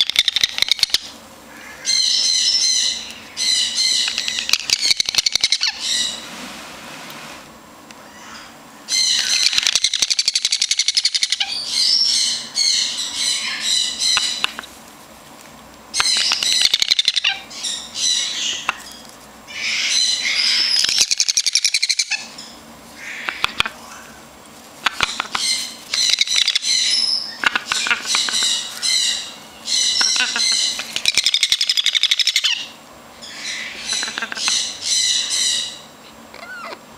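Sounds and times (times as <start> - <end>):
parrot squawking chatter: 0.0 - 6.2, 16.0 - 22.4, 23.0 - 24.2, 24.8 - 36.8.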